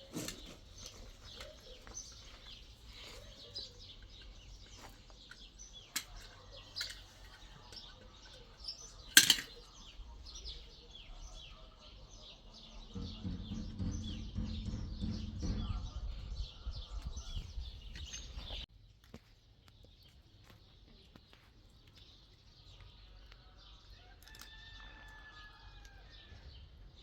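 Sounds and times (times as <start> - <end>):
small birds chirping: 0.0 - 27.0
low rumble: 12.9 - 18.0.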